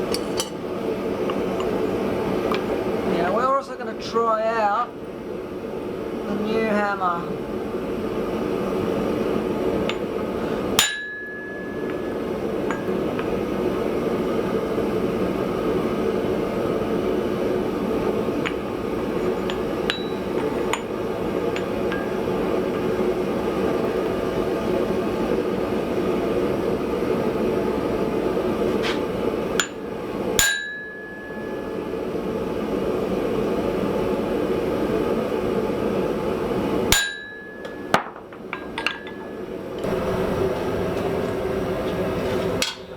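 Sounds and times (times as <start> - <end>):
hammer striking anvil: 10.8 - 12.1, 19.4 - 20.9, 30.4 - 31.7, 37.0 - 39.4
forge roaring: 39.8 - 42.8.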